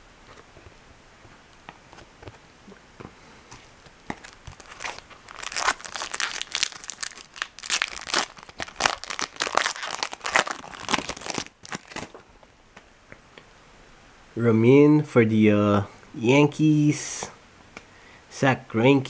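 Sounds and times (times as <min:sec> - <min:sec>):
wrapper tearing and crinkling: 0:04.1 - 0:12.2.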